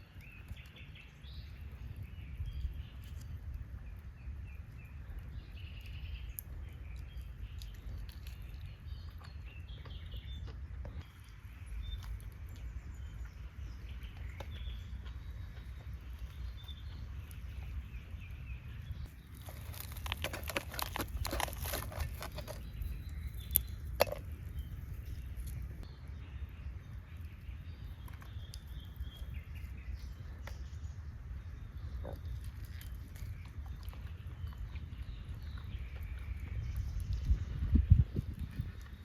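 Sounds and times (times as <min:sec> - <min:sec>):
steady low rumble: 0:00.2 - 0:39.0
clicks and rustling: 0:19.3 - 0:24.4.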